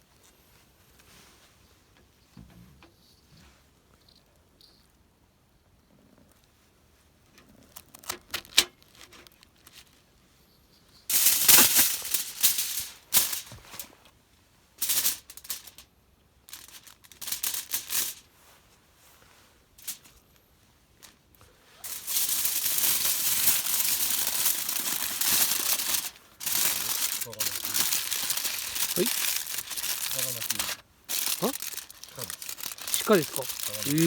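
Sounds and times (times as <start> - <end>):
rustling and rattling: 11.1 - 14.0, 16.5 - 18.2, 21.0 - 34.0.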